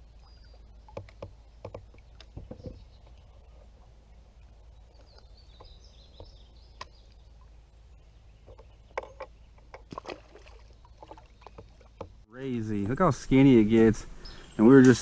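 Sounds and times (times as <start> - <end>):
sharp knocks and clicks: 0.9 - 2.8, 8.4 - 10.0
small bird chirping: 4.4 - 12.2.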